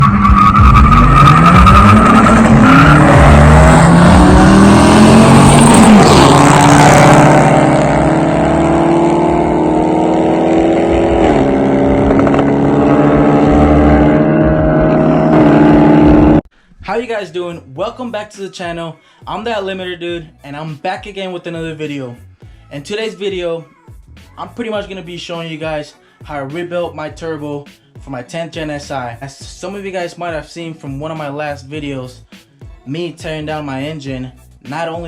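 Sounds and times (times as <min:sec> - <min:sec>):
car engine revving: 0:00.0 - 0:16.4.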